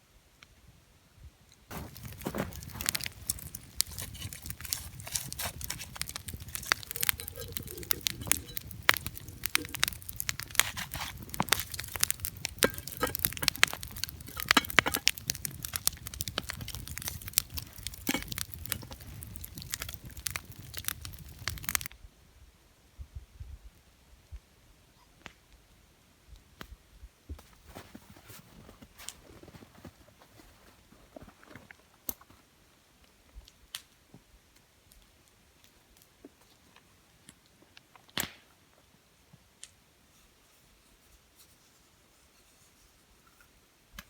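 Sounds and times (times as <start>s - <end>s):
campfire crackling and popping: 1.7s - 21.9s, 37.4s - 38.5s.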